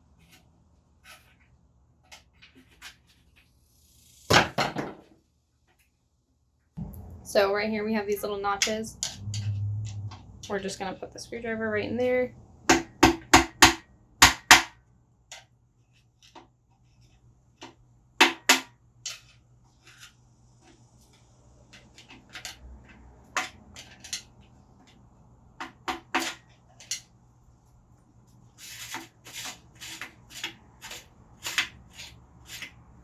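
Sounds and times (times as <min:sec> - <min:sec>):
scraping and rubbing: 0:00.0 - 0:03.5, 0:28.3 - 0:33.0.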